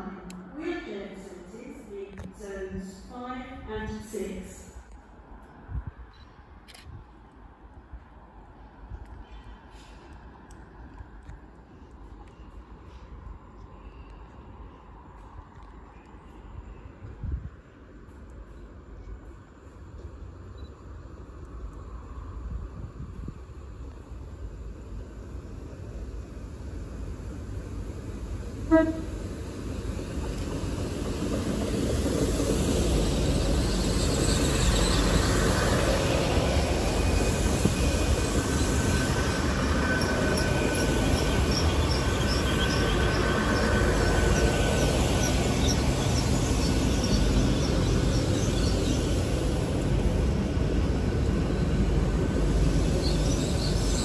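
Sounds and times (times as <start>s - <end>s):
train rumbling past: 16.2s - 54.0s
train horn toot: 28.7s - 29.2s.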